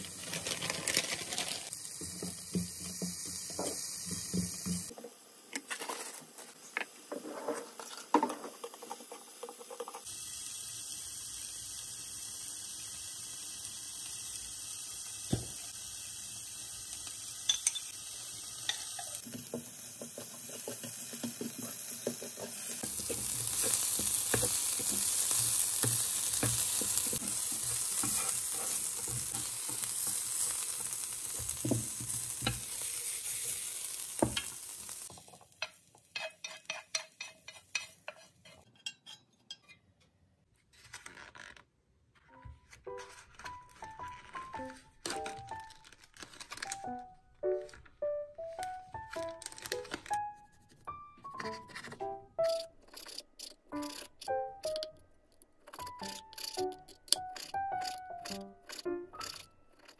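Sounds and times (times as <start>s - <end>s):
vegetables sizzling in pan: 0.0s - 38.0s
taps and scrapes on pan: 35.1s - 39.8s.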